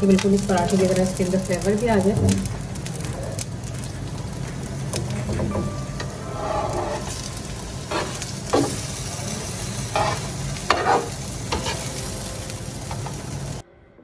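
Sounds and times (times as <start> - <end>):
flatbread sizzling in oil: 0.0 - 13.6
metal spatula scraping pan: 5.6 - 8.8, 9.9 - 12.0.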